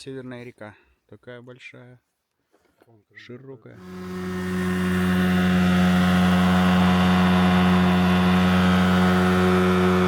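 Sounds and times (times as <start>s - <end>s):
outboard motor running: 3.8s - 10.0s.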